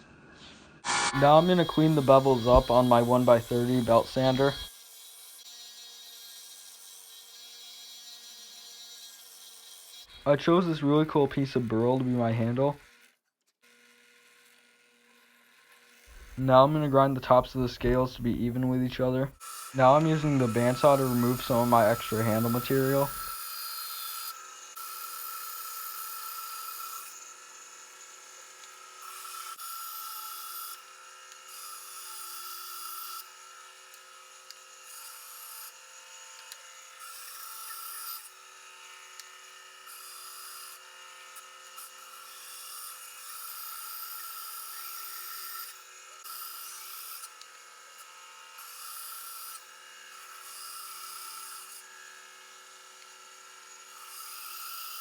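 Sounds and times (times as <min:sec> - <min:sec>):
bandsaw cutting wood hiss: 0:00.8 - 0:04.7, 0:16.1 - 0:27.2
bandsaw motor whine: 0:00.8 - 0:04.8, 0:13.7 - 0:32.2.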